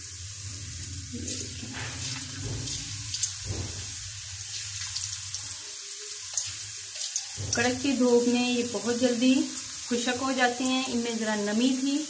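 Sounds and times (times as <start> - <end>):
potato slices sizzling in oil: 0.0 - 12.0
oil popping and crackling: 0.9 - 8.8.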